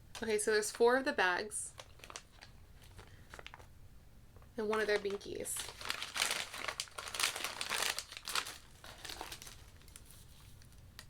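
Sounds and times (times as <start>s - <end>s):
packaging crinkling and rustling: 1.6s - 3.7s, 4.4s - 11.0s.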